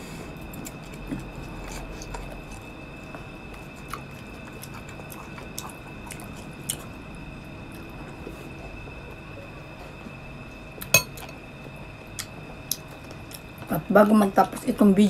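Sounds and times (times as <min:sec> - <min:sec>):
person chewing grapes: 0:00.0 - 0:08.9, 0:12.1 - 0:13.7.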